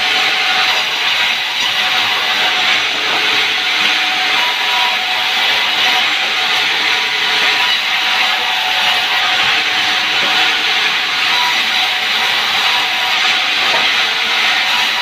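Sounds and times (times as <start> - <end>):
saw whining through log: 0.0 - 15.0.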